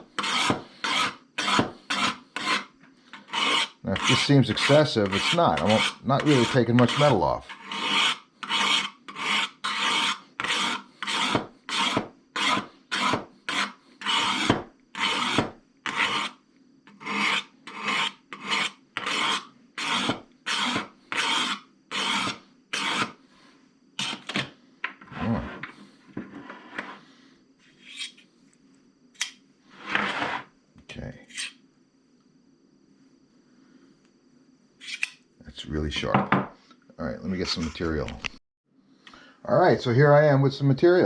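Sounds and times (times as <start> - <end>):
hone rasping along blade: 0.0 - 23.2
scattered scrapes: 0.2 - 16.3.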